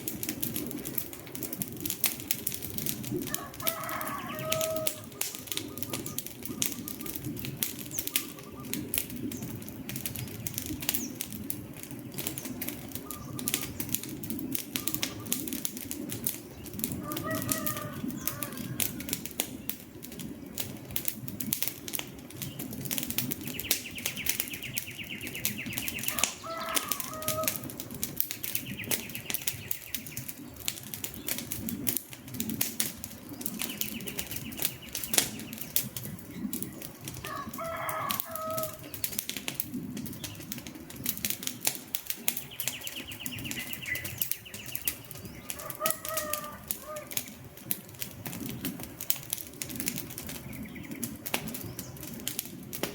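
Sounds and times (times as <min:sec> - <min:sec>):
campfire crackling: 0:00.0 - 0:52.9
rooster crowing: 0:03.3 - 0:05.2, 0:17.0 - 0:19.1, 0:26.1 - 0:27.8, 0:37.2 - 0:38.8, 0:45.4 - 0:47.2.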